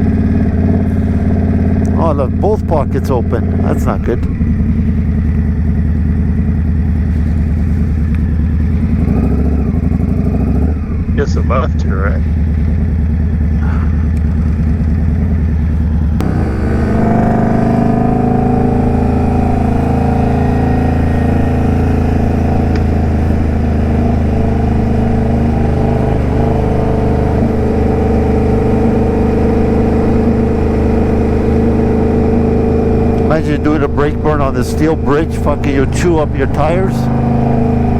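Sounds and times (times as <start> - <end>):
motorcycle engine: 0.0 - 37.9
rushing wind: 14.3 - 37.9.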